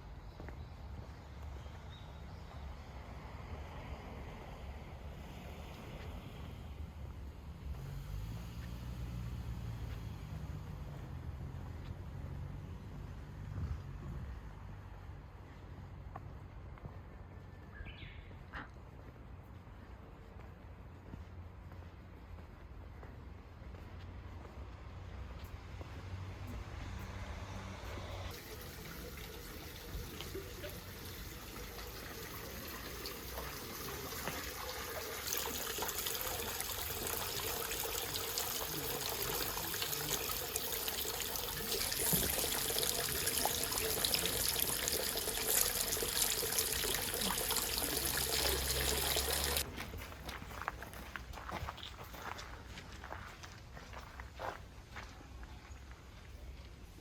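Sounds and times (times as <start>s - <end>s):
running water rushing: 28.3s - 49.6s.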